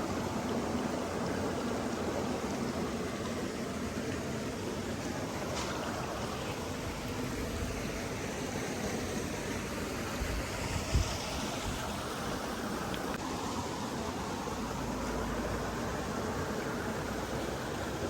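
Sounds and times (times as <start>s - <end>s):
water rushing: 0.0s - 18.0s.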